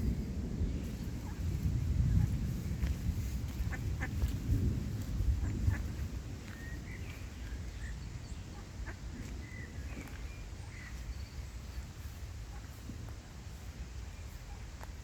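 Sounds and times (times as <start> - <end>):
low rumble: 0.0 - 8.6
birds chirping: 5.3 - 15.0.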